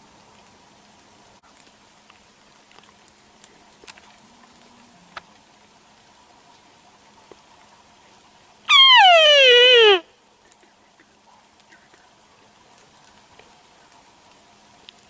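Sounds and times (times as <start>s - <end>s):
faint clicks and ticks: 12.7s - 15.0s.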